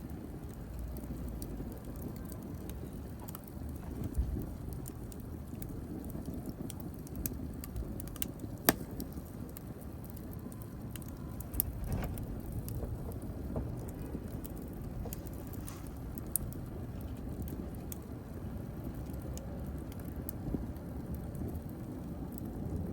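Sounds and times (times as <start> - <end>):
fire crackling and rumbling: 0.0 - 22.9
sharp pop of fire: 8.7 - 9.2.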